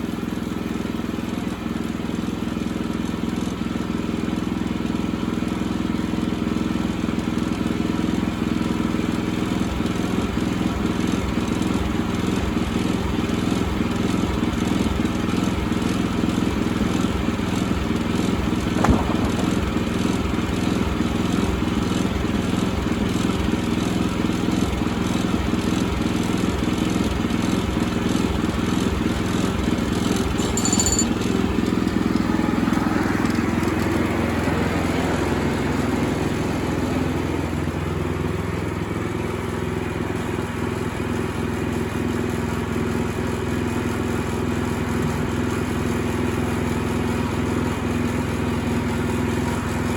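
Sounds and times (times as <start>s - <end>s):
engine running steadily: 0.0s - 49.9s
sharp knock: 18.7s - 19.8s.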